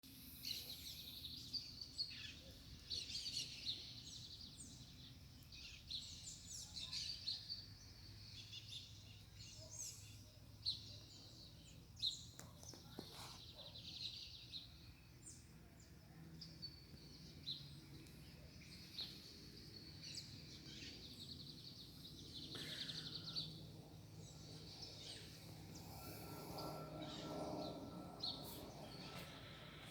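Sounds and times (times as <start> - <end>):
birds chirping: 0.3 - 29.9.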